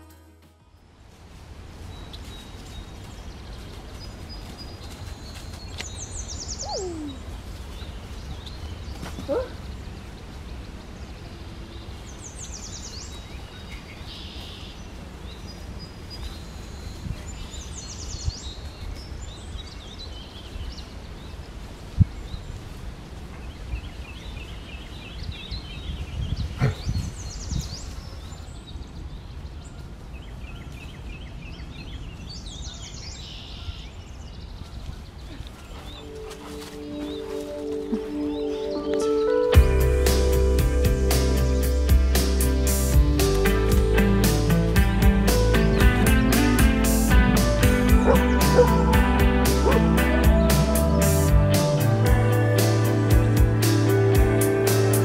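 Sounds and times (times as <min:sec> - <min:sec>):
birds trilling: 0:35.2 - 0:55.0.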